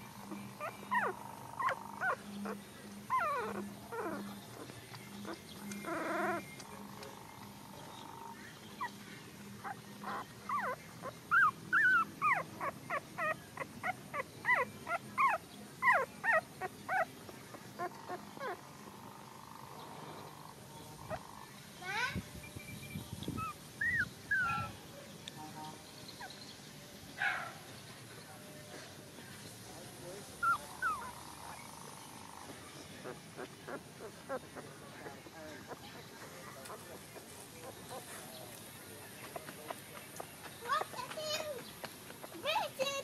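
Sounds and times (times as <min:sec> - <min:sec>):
puppies whimpering and squeaking: 0:00.0 - 0:07.7, 0:09.6 - 0:17.1, 0:17.8 - 0:18.6, 0:23.3 - 0:24.8, 0:30.4 - 0:32.2, 0:33.0 - 0:38.1.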